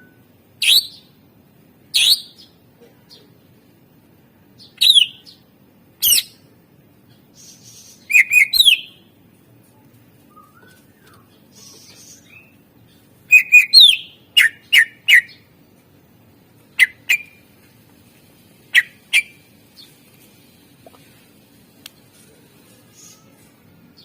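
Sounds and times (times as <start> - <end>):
bird calling in whistled notes: 8.0 - 8.9, 13.3 - 15.4.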